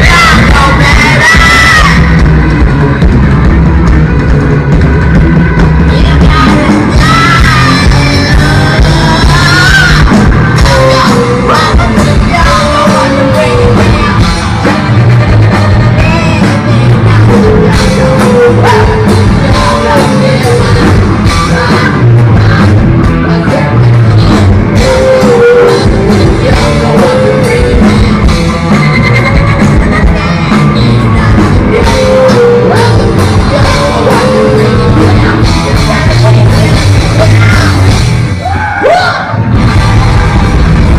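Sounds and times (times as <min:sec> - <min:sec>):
distorted electric guitars: 0:00.0 - 0:40.9
drums: 0:00.0 - 0:40.9.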